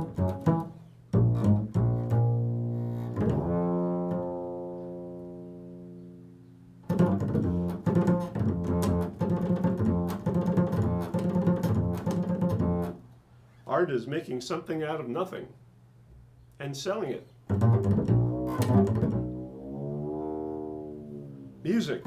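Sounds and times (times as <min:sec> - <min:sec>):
low plucked string instrument: 0:00.0 - 0:06.1, 0:06.8 - 0:13.0, 0:17.5 - 0:21.6.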